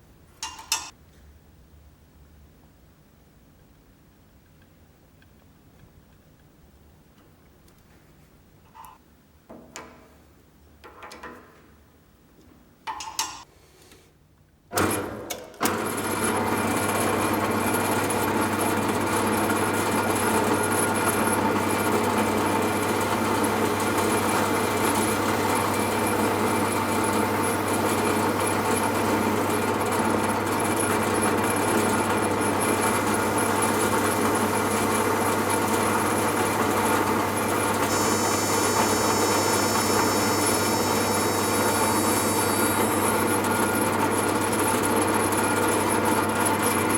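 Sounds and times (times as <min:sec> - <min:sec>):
power tool humming: 0:16.1 - 0:46.9.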